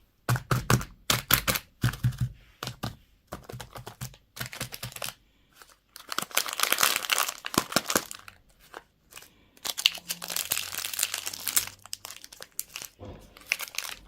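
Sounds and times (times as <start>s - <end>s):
candy wrapper crinkling: 3.3s - 14.0s.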